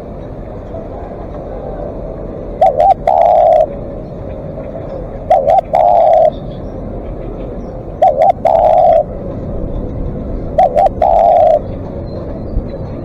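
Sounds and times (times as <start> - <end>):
dove cooing: 2.6 - 3.8, 5.2 - 6.5, 8.0 - 9.3, 10.4 - 11.8.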